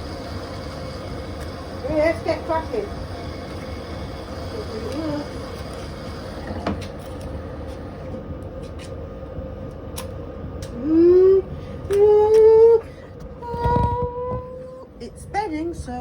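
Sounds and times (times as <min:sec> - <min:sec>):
constant tone: 0:00.0 - 0:08.7
washing machine humming: 0:00.0 - 0:16.0.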